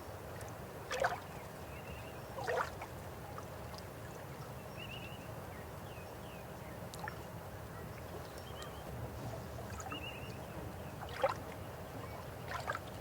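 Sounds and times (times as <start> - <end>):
river water flowing: 0.0 - 4.6, 9.5 - 13.0.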